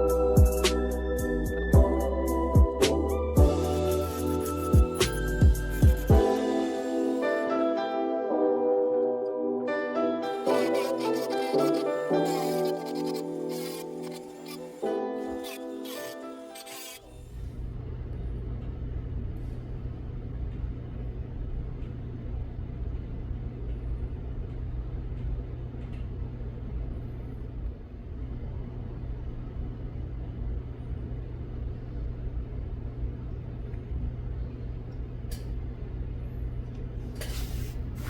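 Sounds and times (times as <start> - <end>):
low mechanical hum and rumble: 10.4 - 38.0.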